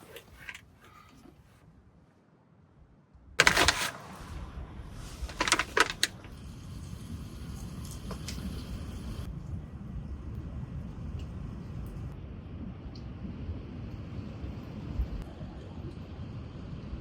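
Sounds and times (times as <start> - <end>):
wind: 0.0 - 17.0
sharp clicks and knocks: 5.3 - 6.3
rain: 6.2 - 15.4.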